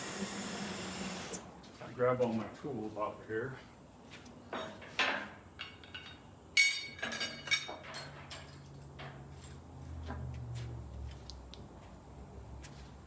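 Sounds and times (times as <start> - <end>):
metal tools clinking: 5.6 - 8.7.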